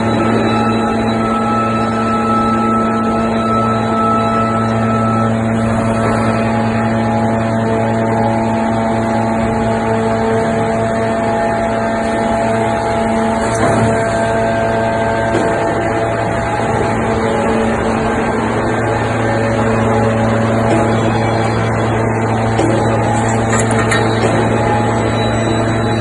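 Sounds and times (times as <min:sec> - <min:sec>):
hydraulic power unit droning hum: 0:00.0 - 0:26.0.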